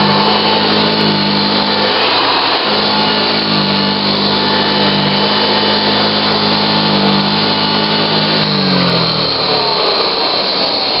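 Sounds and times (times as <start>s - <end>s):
vacuum cleaner motor humming: 0.0s - 11.0s.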